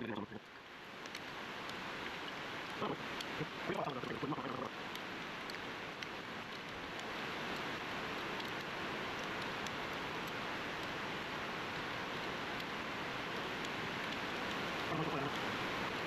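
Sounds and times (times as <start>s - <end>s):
steady hiss: 0.0s - 16.0s
faint ticks: 0.2s - 11.0s.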